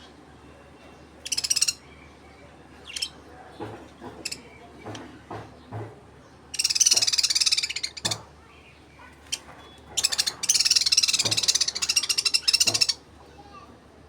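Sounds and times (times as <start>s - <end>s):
parrots trilling: 1.2s - 1.8s, 6.5s - 8.3s, 9.1s - 13.1s.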